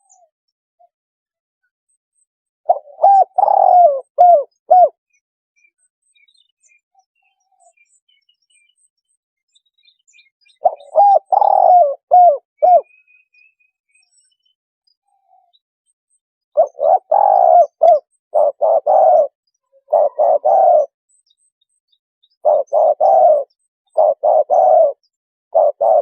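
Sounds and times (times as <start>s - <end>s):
dove cooing: 2.7s - 5.0s, 10.6s - 12.9s, 16.6s - 21.0s, 22.4s - 26.0s.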